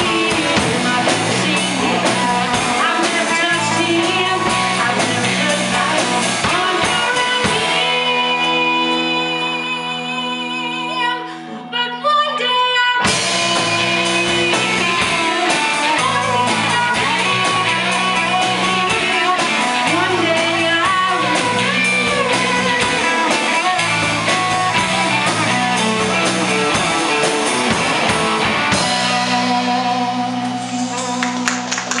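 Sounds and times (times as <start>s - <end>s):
vocal group singing: 0.0s - 10.6s
rock band playing: 0.0s - 12.0s, 13.0s - 32.0s.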